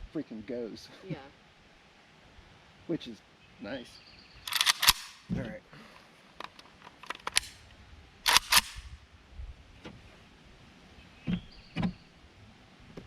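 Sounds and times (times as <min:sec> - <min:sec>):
rifle mechanism clicking: 0:04.5 - 0:05.2, 0:06.4 - 0:07.6, 0:08.3 - 0:08.9.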